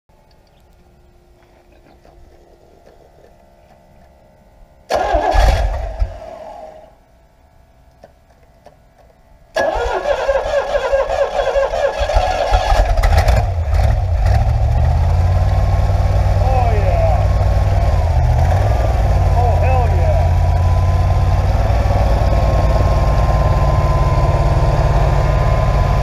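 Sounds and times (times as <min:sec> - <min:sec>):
engine starting and running: 0:04.9 - 0:07.0, 0:09.5 - 0:26.0.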